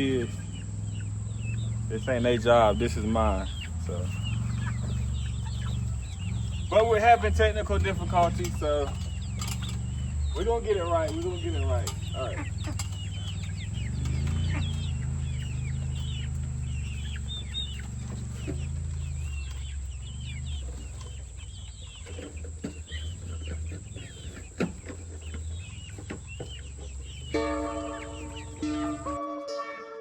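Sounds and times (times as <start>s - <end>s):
steady low hum: 0.0s - 29.2s
chickens clucking: 0.0s - 29.4s
music: 27.4s - 30.0s.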